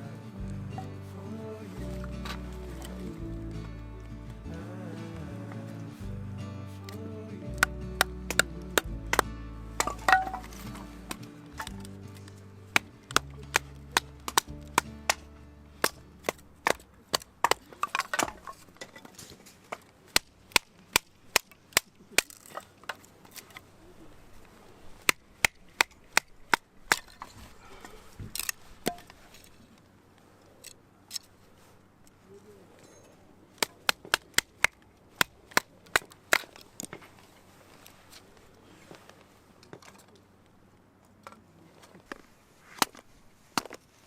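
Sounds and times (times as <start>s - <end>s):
wood fire crackling and popping: 6.8s - 18.8s.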